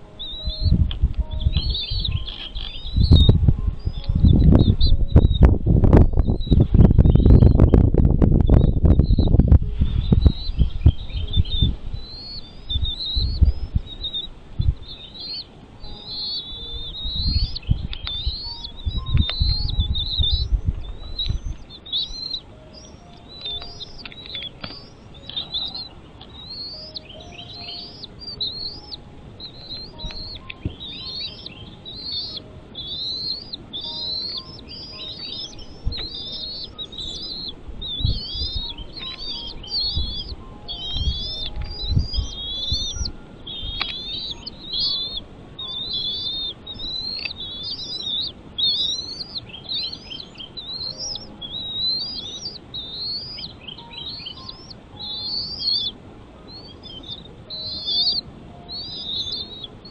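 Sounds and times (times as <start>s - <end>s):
low rumbling thumps: 0.0s - 14.9s
birds chirping: 0.0s - 59.9s.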